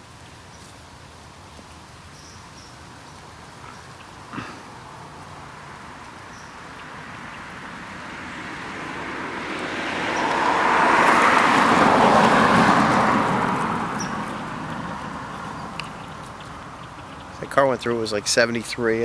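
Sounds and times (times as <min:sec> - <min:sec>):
car driving past: 0:03.6 - 0:17.5.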